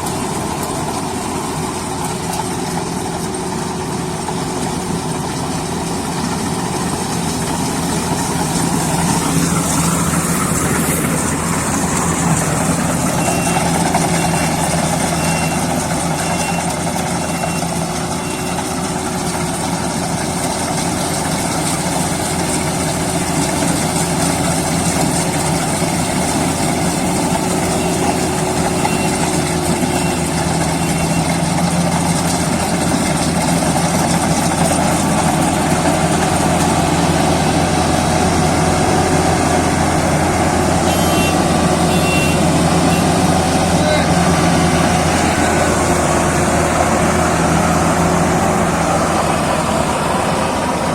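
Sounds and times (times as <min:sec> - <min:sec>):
heavy diesel engine running: 0:00.0 - 0:50.9
short high beeps: 0:13.1 - 0:18.7, 0:27.7 - 0:31.4, 0:40.9 - 0:43.2.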